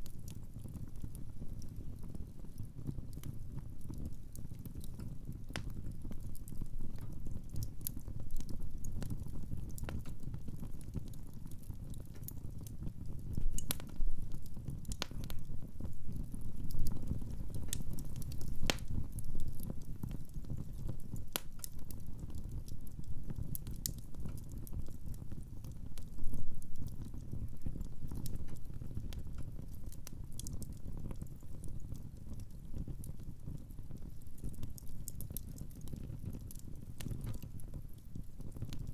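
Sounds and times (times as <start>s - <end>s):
wood fire crackling: 0.0s - 38.9s
logs popping and snapping: 17.6s - 19.0s.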